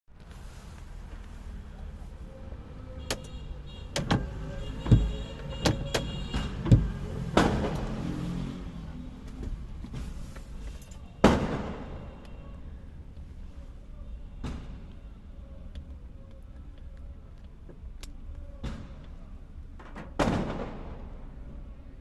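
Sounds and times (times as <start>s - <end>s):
fireworks bangs with echo: 11.2s - 12.2s, 20.2s - 21.4s.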